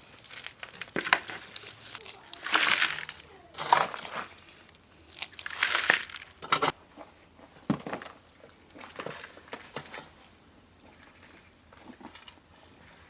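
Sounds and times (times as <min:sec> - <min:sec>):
wrapping crinkling and tearing: 0:00.0 - 0:06.7.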